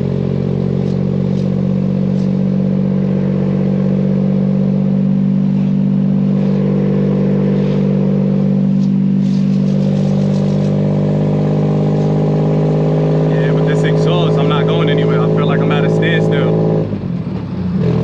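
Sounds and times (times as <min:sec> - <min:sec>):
car engine running steadily: 0:00.0 - 0:18.0.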